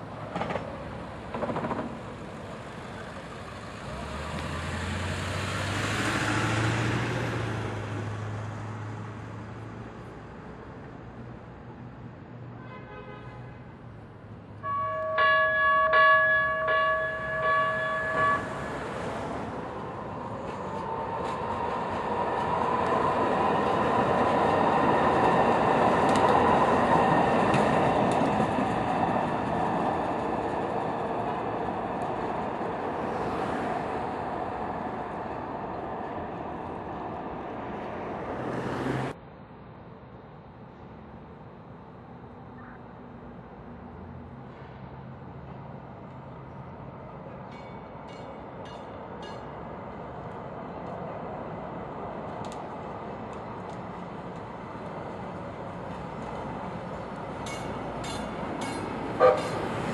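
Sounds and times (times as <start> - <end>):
train wheel and motor noise: 0.0 - 4.9, 14.6 - 39.2, 44.0 - 59.9
train horn blasts: 14.6 - 18.9, 59.2 - 59.6.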